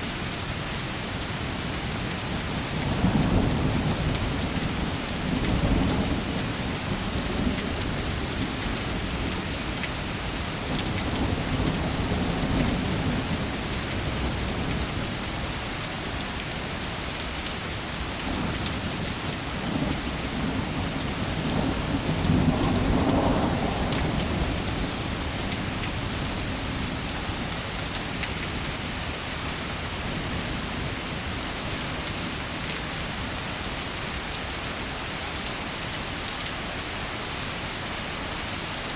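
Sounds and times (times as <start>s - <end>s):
heavy rain hissing: 0.0s - 38.9s
rolling thunder: 18.3s - 27.6s.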